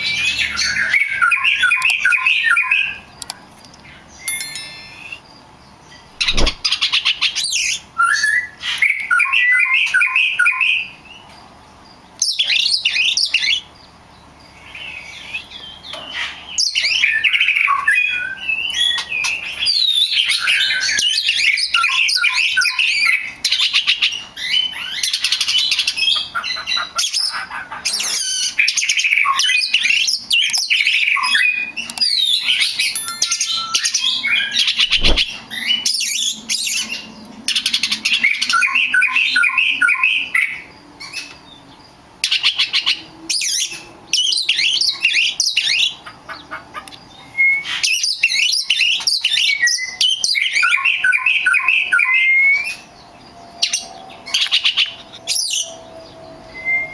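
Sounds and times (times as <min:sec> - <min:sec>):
bird singing: 0:00.0 - 0:56.9
sharp knock: 0:06.2 - 0:06.6, 0:34.9 - 0:35.3.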